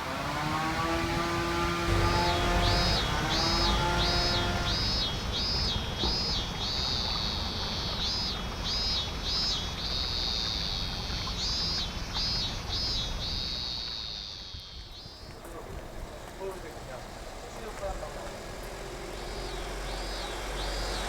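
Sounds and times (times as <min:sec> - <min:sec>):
low outdoor rumble: 0:01.0 - 0:09.6, 0:14.7 - 0:21.0.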